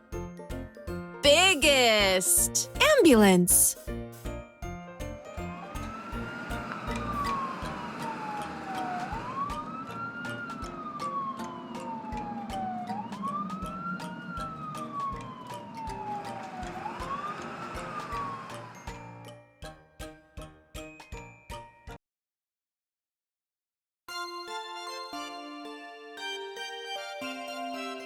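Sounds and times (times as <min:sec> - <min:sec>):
cheerful background music: 0:00.0 - 0:22.0, 0:24.1 - 0:28.0
ambulance siren wailing: 0:05.6 - 0:19.0.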